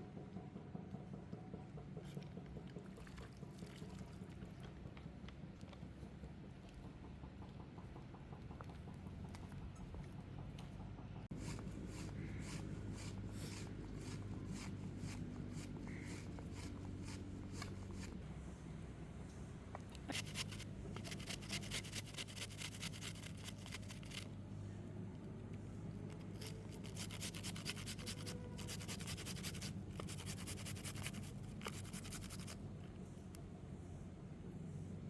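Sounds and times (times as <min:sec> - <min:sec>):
steady low hum: 0:00.0 - 0:35.0
rapid scraping or chopping strokes: 0:11.3 - 0:18.2, 0:20.0 - 0:24.3, 0:26.4 - 0:32.6.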